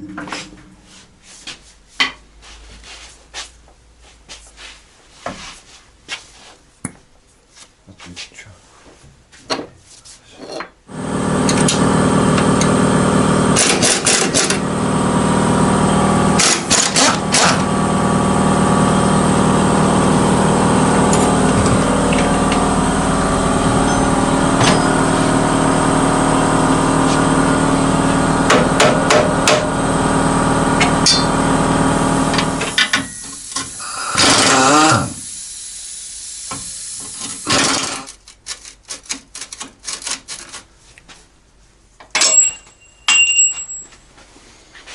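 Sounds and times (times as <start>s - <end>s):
impact wrench hammering: 13.5s - 14.7s, 16.4s - 17.7s, 21.0s - 22.7s, 23.6s - 25.4s, 28.4s - 29.8s, 30.8s - 31.6s, 32.3s - 35.2s.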